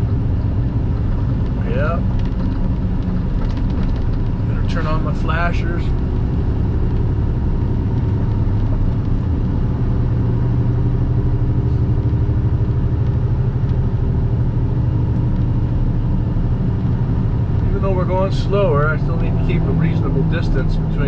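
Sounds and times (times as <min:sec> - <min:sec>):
truck diesel engine drone: 0:00.0 - 0:21.0.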